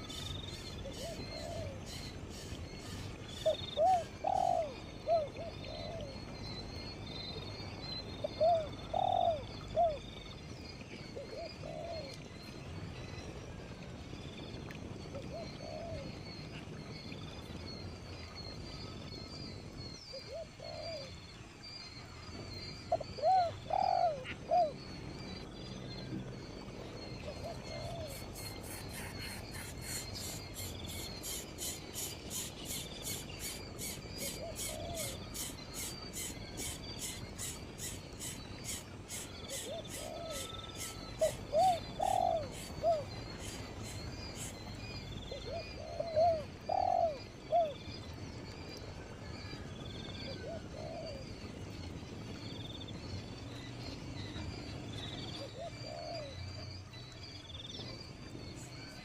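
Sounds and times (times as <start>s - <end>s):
bird cooing: 0.8s - 2.0s, 3.4s - 6.2s, 8.3s - 10.0s, 11.2s - 12.1s, 15.3s - 16.1s, 22.9s - 24.8s, 27.3s - 30.7s, 33.1s - 44.6s, 45.3s - 47.8s, 50.4s - 51.3s, 55.4s - 56.4s.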